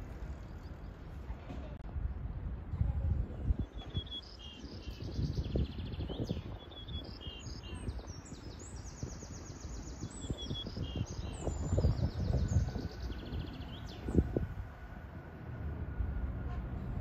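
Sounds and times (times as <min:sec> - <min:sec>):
wind rumble on microphone: 0:00.0 - 0:17.0
birds chirping and trilling: 0:03.6 - 0:14.4.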